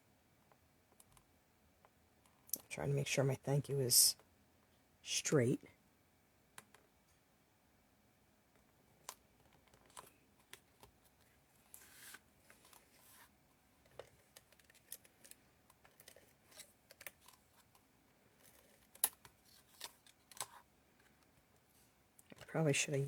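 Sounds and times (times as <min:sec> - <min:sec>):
paper rustling: 0:11.7 - 0:13.3.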